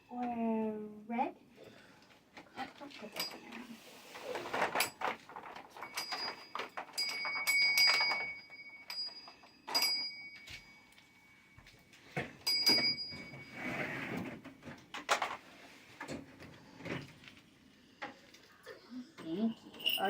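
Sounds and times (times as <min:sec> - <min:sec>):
short bell-like rings: 0:19.6 - 0:20.0.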